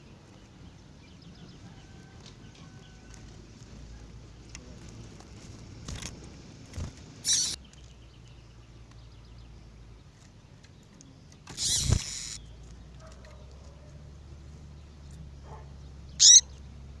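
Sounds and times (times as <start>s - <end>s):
bird sharp calls: 7.2s - 7.7s, 11.4s - 13.9s, 15.4s - 16.6s.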